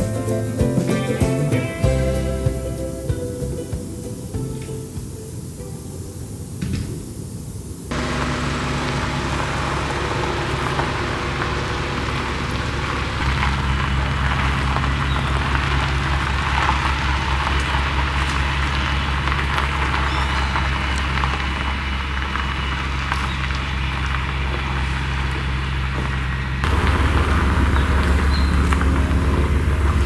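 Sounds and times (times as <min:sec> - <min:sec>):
music: 0:00.0 - 0:06.5
tyre and road noise: 0:00.0 - 0:07.3, 0:07.9 - 0:30.0
car engine hum: 0:07.9 - 0:30.0.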